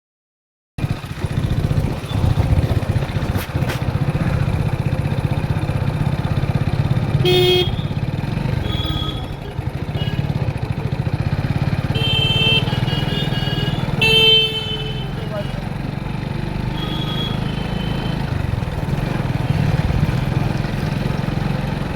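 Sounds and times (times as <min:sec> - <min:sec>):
motorcycle engine and road rumble: 0:00.8 - 0:21.9
vehicle horn honking: 0:07.1 - 0:10.5, 0:11.7 - 0:15.6, 0:16.6 - 0:18.4.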